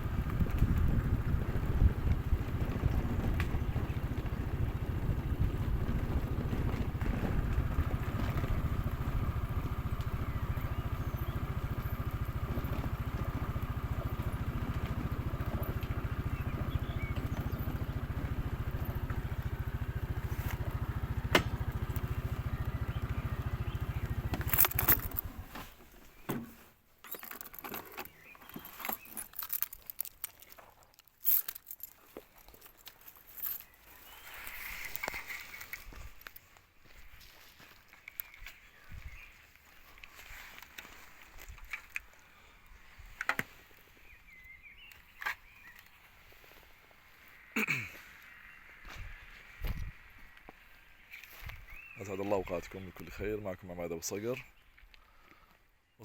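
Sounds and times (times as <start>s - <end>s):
wind noise on microphone: 0.0s - 11.4s, 48.9s - 50.1s
motorcycle engine running: 0.0s - 25.8s.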